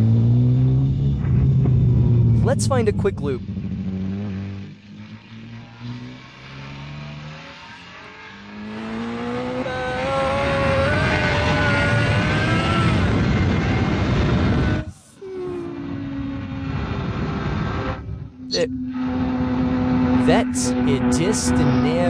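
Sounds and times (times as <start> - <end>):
motorcycle engine accelerating: 0.0 - 22.0
wind rushing over microphone: 10.5 - 20.6.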